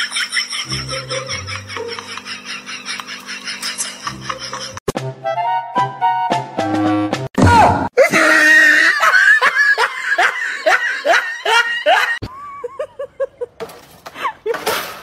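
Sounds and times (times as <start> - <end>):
person giggling: 0.0 - 4.8, 8.0 - 14.6
person laughing: 0.0 - 4.8, 8.0 - 14.7.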